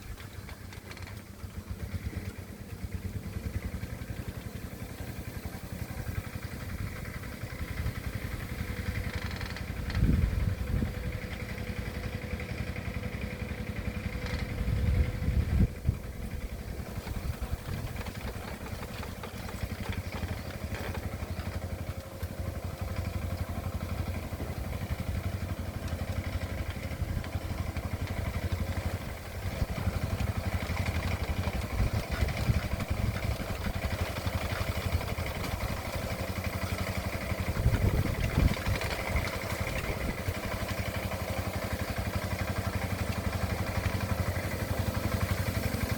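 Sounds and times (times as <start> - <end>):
ploughing machine engine clattering: 0.0 - 45.9.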